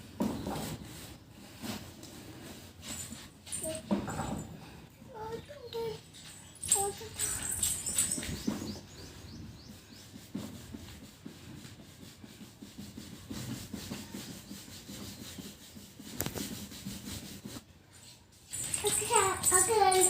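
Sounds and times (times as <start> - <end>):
rubbing on plastic toy car: 5.7 - 20.0.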